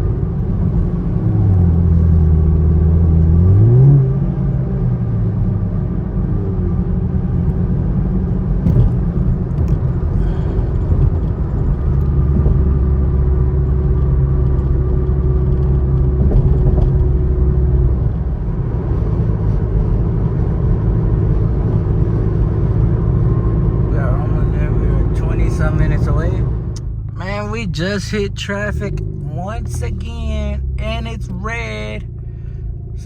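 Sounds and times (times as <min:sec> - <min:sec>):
car engine and road rumble: 0:00.0 - 0:33.0.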